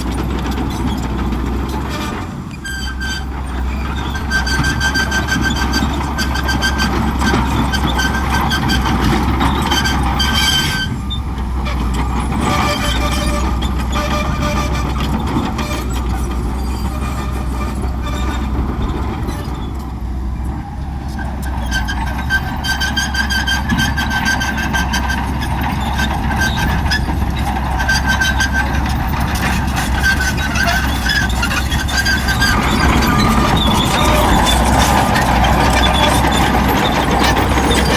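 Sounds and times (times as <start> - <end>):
bulldozer diesel engine droning: 0.0 - 37.9
high squeal: 25.8 - 37.9.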